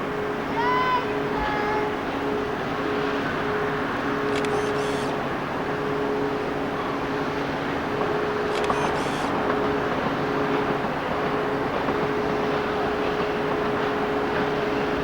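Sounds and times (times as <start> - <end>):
diesel locomotive running: 0.0 - 15.0.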